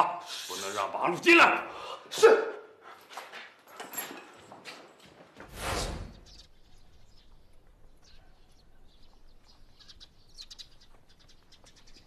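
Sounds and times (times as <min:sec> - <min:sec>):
birds chirping: 0:06.0 - 0:12.0.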